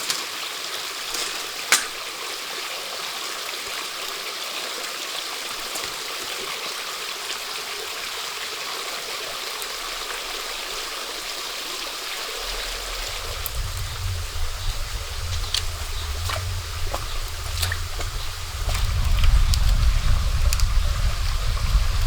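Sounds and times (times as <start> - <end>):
stream flowing: 9.6 - 22.0
low rumble: 12.2 - 22.0.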